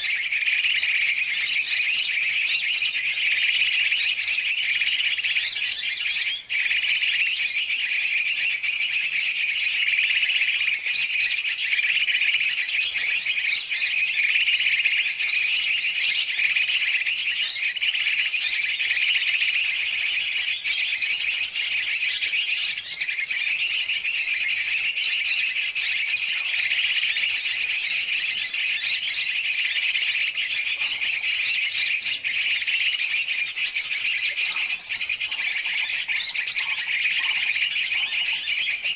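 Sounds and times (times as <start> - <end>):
chorus of birds chirping: 0.0 - 38.9.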